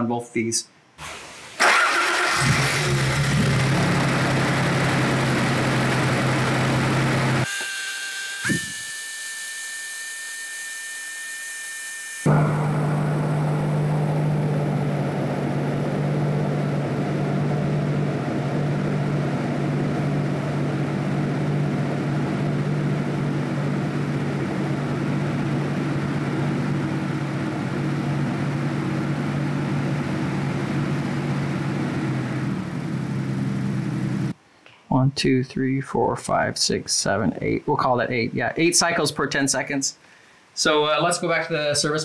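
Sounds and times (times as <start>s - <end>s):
engine running at raised revs: 2.4s - 7.4s, 12.3s - 34.3s.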